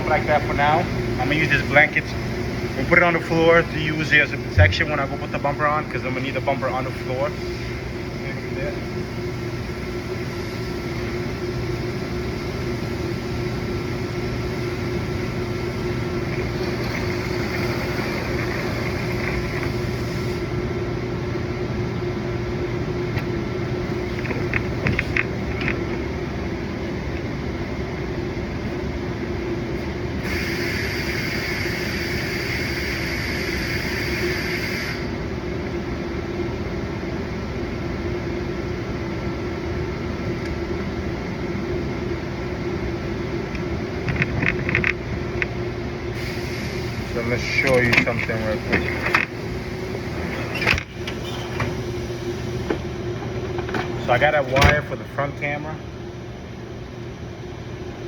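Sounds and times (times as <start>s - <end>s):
machine hum: 0.8s - 54.2s.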